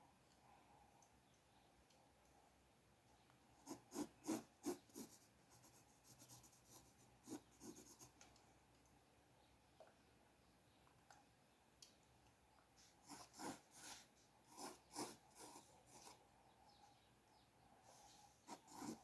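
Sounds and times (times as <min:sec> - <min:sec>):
pencil scratching on paper: 0:03.6 - 0:08.1, 0:12.8 - 0:16.2, 0:17.9 - 0:19.0.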